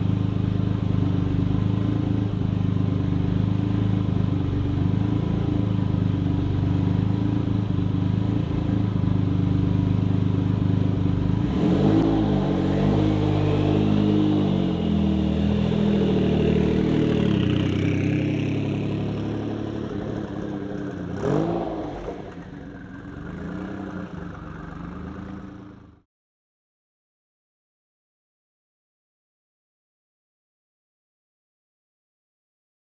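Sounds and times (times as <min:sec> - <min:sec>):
car engine revving: 0:11.2 - 0:26.0.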